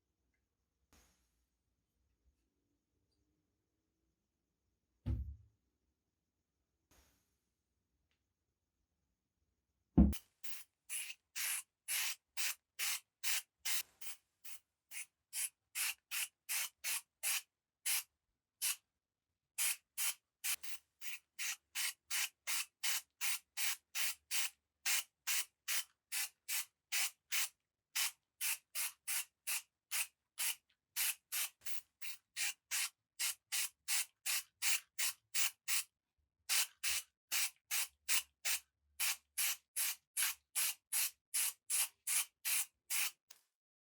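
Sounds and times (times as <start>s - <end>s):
sharp knock: 5.1s - 5.4s.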